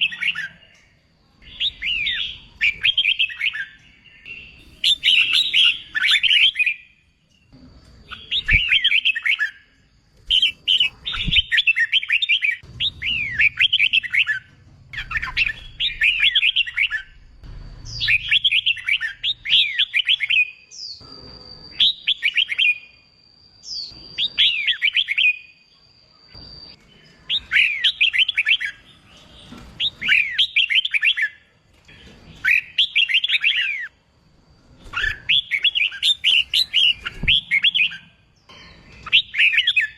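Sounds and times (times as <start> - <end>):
bird singing warbled phrases: 0.0 - 17.2, 34.9 - 39.9.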